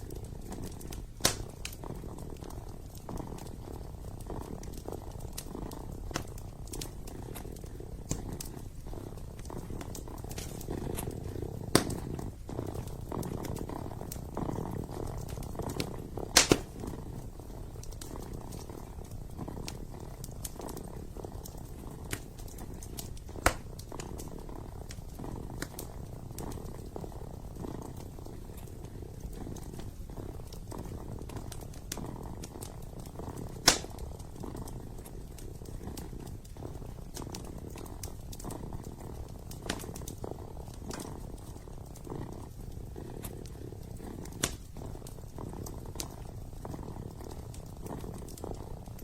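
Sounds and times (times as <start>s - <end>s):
kitten purring: 0.0s - 49.0s
wood fire crackling: 0.0s - 49.0s.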